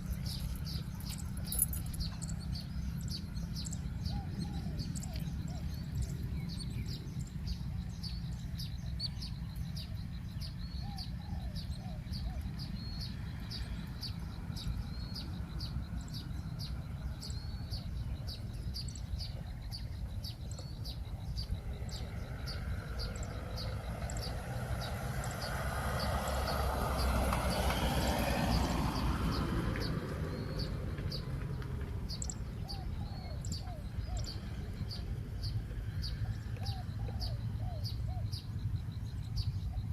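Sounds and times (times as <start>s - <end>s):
doves cooing: 0.0s - 7.8s, 32.2s - 38.5s.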